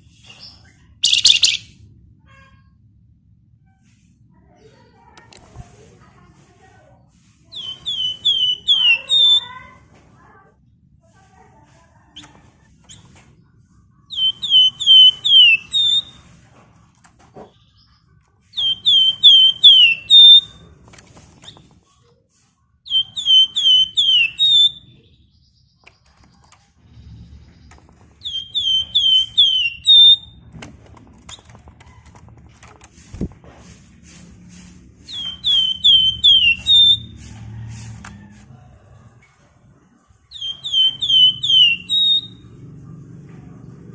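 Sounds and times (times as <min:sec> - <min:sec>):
bird singing whistled phrases: 0:01.0 - 0:01.7, 0:07.6 - 0:09.4, 0:14.1 - 0:16.2, 0:18.6 - 0:20.6, 0:22.9 - 0:24.9, 0:28.2 - 0:30.4, 0:35.1 - 0:37.1, 0:40.3 - 0:42.4.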